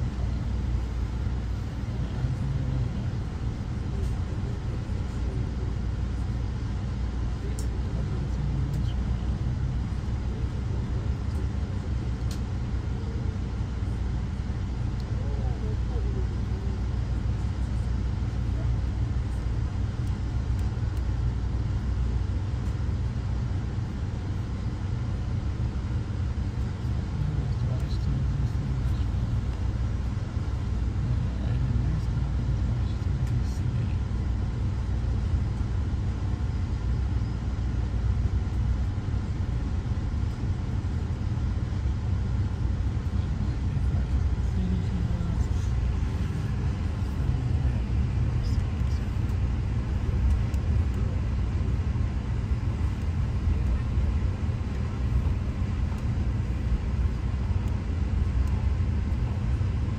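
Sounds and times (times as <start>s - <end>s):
passenger train rumble from on board: 0.0s - 59.9s.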